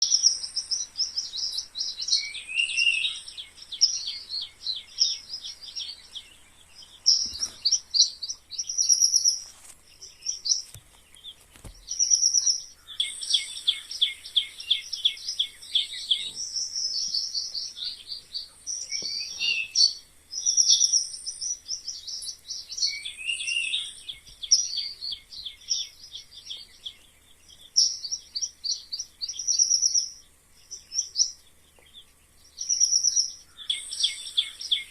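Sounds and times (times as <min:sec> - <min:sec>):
mice squeaking: 0:07.0 - 0:25.2.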